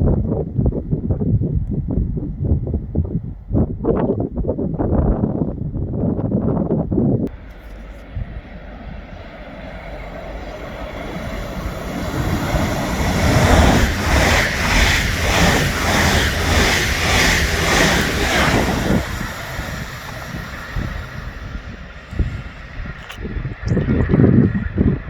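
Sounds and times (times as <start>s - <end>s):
train wheels beating over rails: 7.3s - 23.0s.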